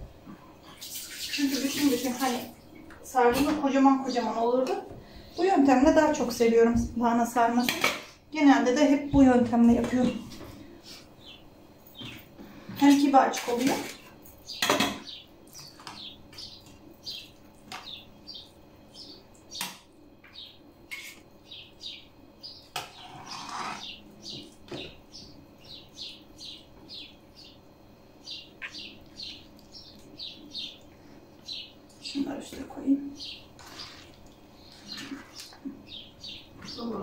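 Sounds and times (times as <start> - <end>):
small birds chirping: 8.8 - 37.0.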